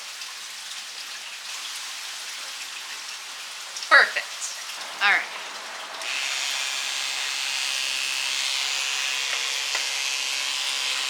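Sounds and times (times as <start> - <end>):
electric hair clippers buzzing: 5.1 - 11.0.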